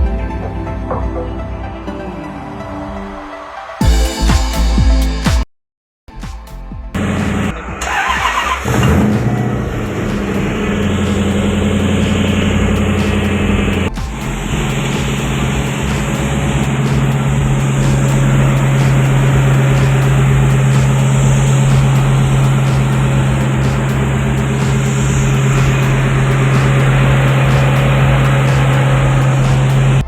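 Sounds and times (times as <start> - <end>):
car engine idling: 7.0 - 30.0.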